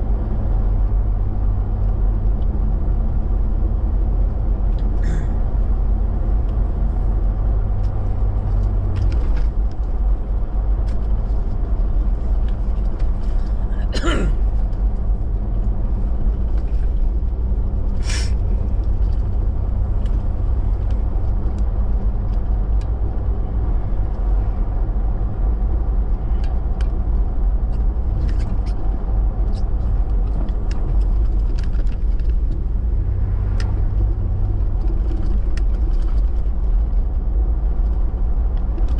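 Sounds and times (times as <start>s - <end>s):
car engine and tyre rumble: 0.0s - 38.9s
short hiss: 18.0s - 18.4s.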